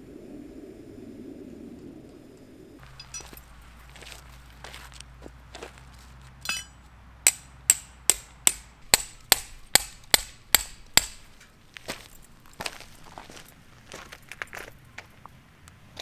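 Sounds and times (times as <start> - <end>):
hammer strikes ringing: 2.8 - 3.5, 6.4 - 11.2
metallic clink: 2.8 - 4.3, 6.4 - 11.3.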